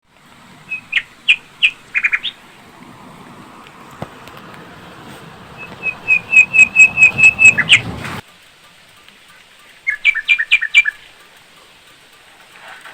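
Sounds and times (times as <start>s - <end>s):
faint low rushing background: 0.0s - 8.2s
bird chirping: 0.3s - 8.2s, 9.8s - 11.1s.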